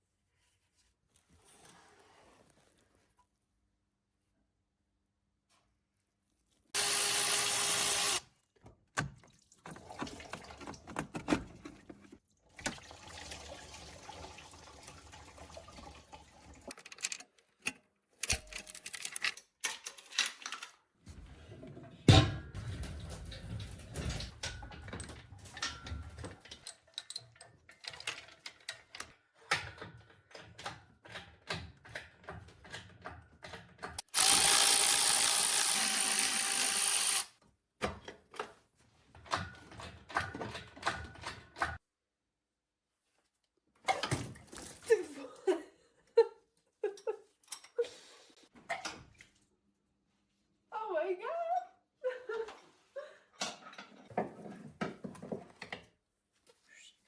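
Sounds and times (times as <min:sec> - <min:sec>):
power tool burst: 0:06.8 - 0:08.2, 0:34.1 - 0:37.3
tools and parts clinking: 0:16.6 - 0:21.0, 0:22.2 - 0:30.7.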